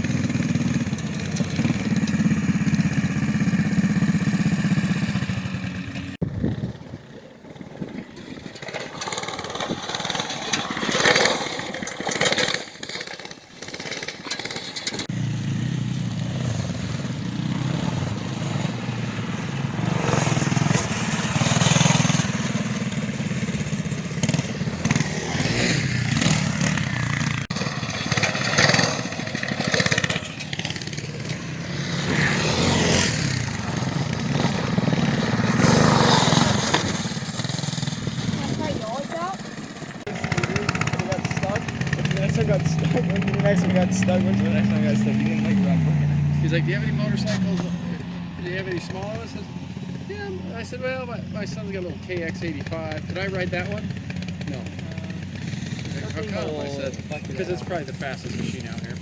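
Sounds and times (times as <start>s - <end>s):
minibike engine running: 0.0s - 59.0s.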